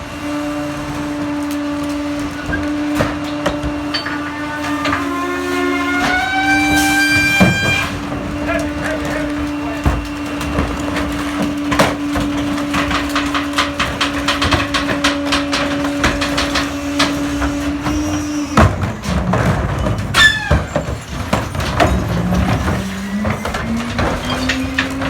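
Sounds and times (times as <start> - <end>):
knocks and clanks of crushing trash: 0.0 - 25.0
falling mechanical squeal: 3.9 - 8.0, 19.8 - 21.1
truck engine revving: 21.0 - 25.0.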